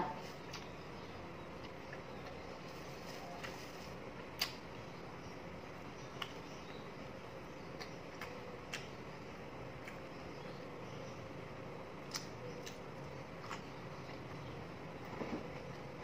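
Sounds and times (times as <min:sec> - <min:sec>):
faint background hum: 0:00.0 - 0:16.0
soft mouth clicks and smacks: 0:04.4 - 0:04.6.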